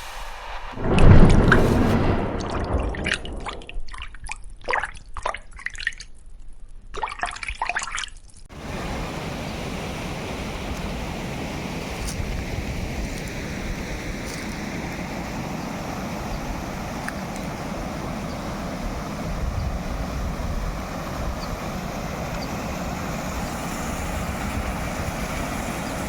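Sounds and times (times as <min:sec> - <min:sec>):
steady rushing noise: 0:00.0 - 0:03.8
water dripping and splashing: 0:02.4 - 0:06.3, 0:06.9 - 0:08.5, 0:13.0 - 0:26.0.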